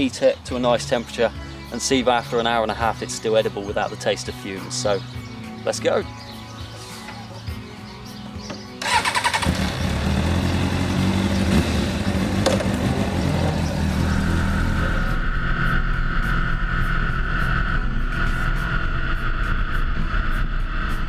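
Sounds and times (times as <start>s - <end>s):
motorcycle engine starting and running: 8.4s - 19.1s
steady higher tone: 13.7s - 21.0s.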